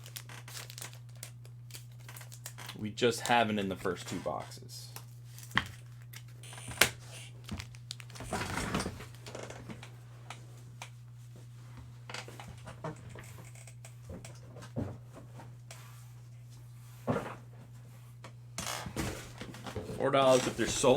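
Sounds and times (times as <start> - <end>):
cards and foil packs rustling: 0.0 - 9.4, 19.4 - 20.9
steady low hum: 0.0 - 20.9.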